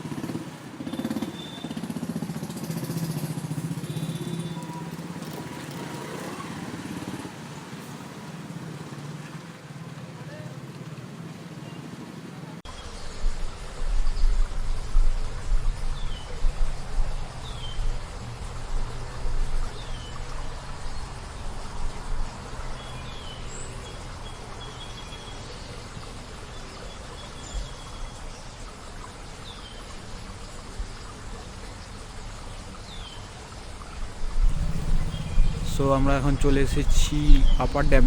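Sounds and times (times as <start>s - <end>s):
wind gusting on microphone: 34.0s - 38.0s.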